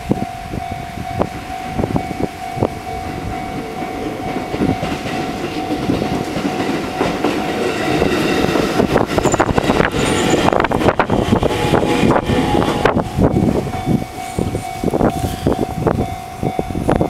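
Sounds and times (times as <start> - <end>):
level crossing warning bell: 0.0 - 17.0
train wheels clacking over rail joints: 2.9 - 15.7.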